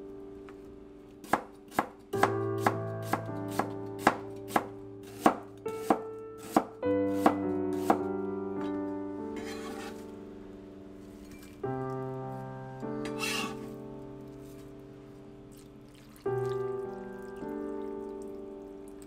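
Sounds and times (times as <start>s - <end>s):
background music: 0.0s - 19.0s
knife chopping on cutting board: 1.2s - 8.1s.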